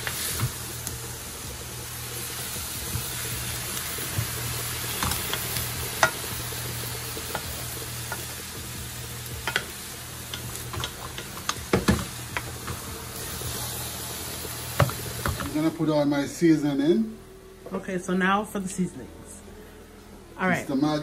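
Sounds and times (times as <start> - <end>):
meat sizzling in a pot: 0.0 - 16.8.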